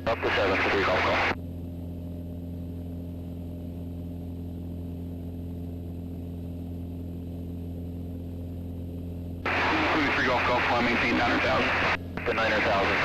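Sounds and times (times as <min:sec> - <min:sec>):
airplane engine and propeller drone: 0:00.0 - 0:13.0.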